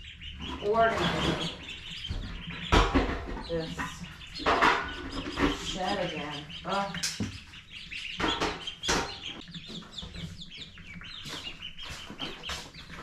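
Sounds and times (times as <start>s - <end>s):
chickens clucking and chirping: 0.0s - 13.0s
knocks: 2.0s - 5.8s, 8.1s - 9.4s.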